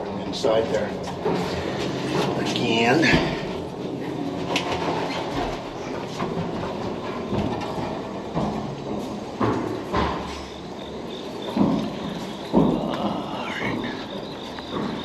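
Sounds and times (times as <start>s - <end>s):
train rumbling: 0.0s - 15.0s
knocks and thuds: 6.2s - 10.4s.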